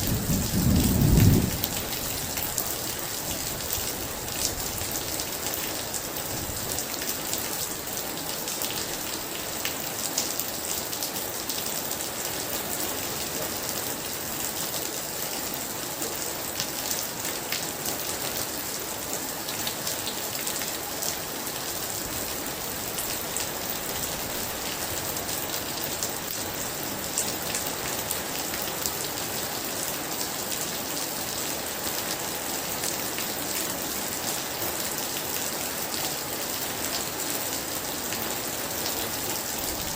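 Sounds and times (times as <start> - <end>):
sharp ticks of raindrops: 0.0 - 13.2
heavy rain pouring: 0.0 - 39.9.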